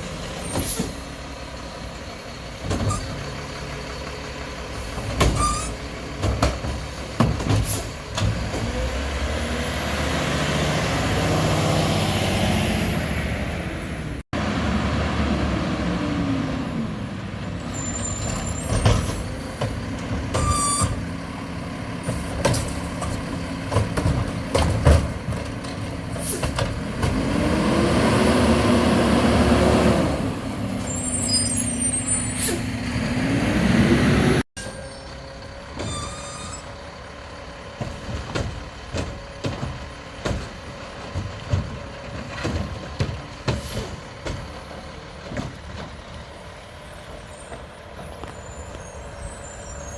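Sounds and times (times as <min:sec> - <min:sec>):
truck engine revving: 0:00.0 - 0:34.5
knocks and clatter: 0:06.1 - 0:08.8, 0:21.9 - 0:27.3, 0:37.6 - 0:46.3.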